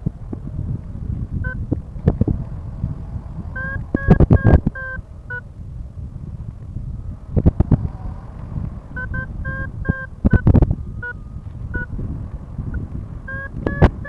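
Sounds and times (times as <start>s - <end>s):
wind buffeting microphone: 0.0s - 14.0s
variometer beeping: 1.4s - 2.2s, 3.5s - 5.5s, 8.2s - 12.0s, 12.7s - 14.0s.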